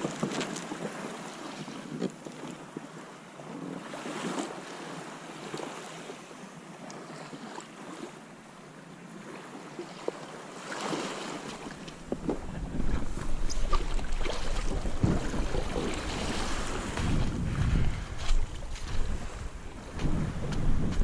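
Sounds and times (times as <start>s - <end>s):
water lapping around a kayak: 0.0s - 21.0s
wind on microphone: 12.0s - 21.0s.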